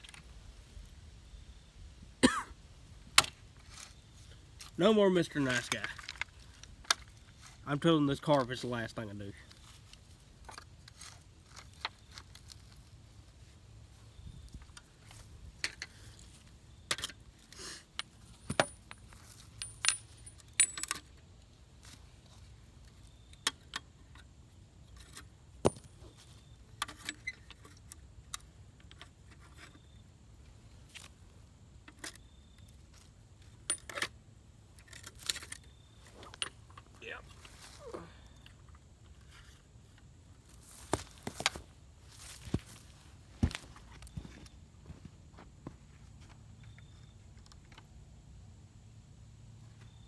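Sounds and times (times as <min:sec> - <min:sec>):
small metal parts clinking: 0:17.8 - 0:21.2, 0:32.9 - 0:34.1.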